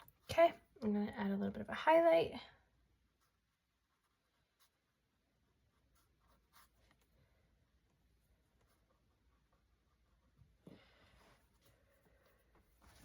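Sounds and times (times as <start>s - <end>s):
paintbrush scratching on canvas: 2.9s - 7.2s, 8.1s - 10.6s.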